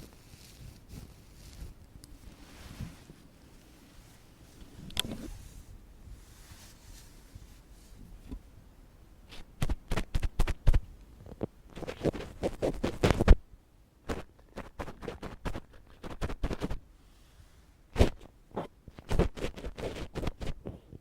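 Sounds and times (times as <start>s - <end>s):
ear pick scratching: 11.4s - 13.4s, 14.1s - 16.8s, 18.0s - 20.6s.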